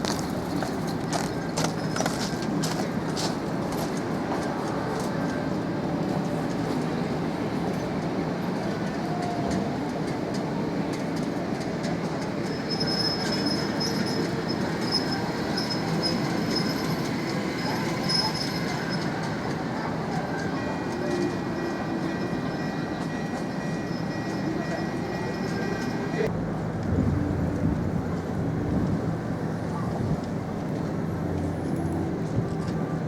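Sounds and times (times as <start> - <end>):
tram rumbling on rails: 0.0 - 33.0
high-pitched wheel squeal: 12.4 - 19.2.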